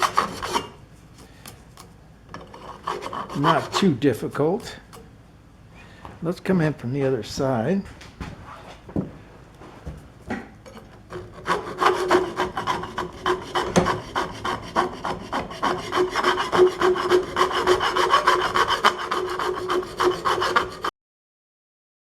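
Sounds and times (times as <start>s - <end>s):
rubbing strokes on metal: 2.5s - 3.9s, 11.2s - 20.9s.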